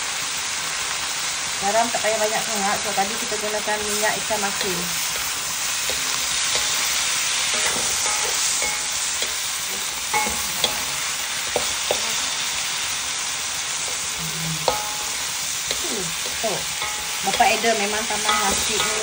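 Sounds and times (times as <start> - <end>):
stir-fry sizzling in hot oil: 0.0 - 19.0
spatula scraping a pan: 4.4 - 12.4, 13.7 - 19.0.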